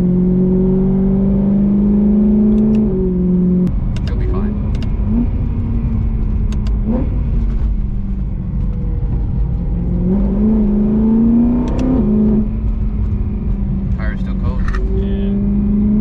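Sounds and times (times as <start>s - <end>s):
car engine droning inside car: 0.0s - 16.0s.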